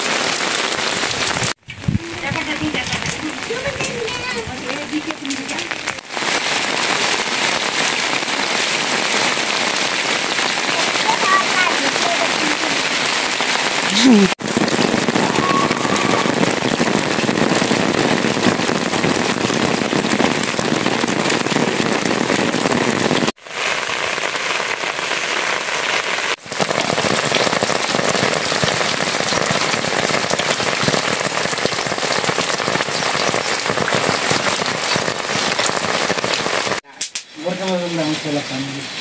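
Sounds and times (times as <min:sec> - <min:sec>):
rain falling on puddles: 0:00.0 - 0:39.0.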